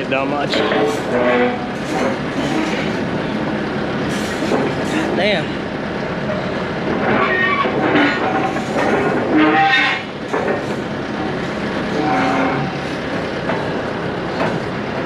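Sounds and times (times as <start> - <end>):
steel joints squealing and groaning: 0.0 - 15.0.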